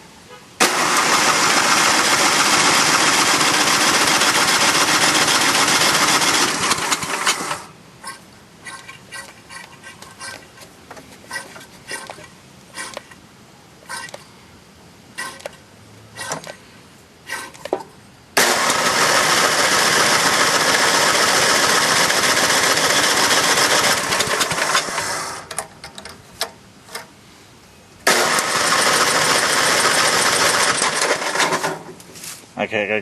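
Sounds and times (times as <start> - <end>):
electric starter cranking engine: 0.6 - 7.8, 18.4 - 26.0, 28.1 - 31.9
engine sputtering: 0.6 - 7.8, 18.4 - 25.7, 28.1 - 31.8.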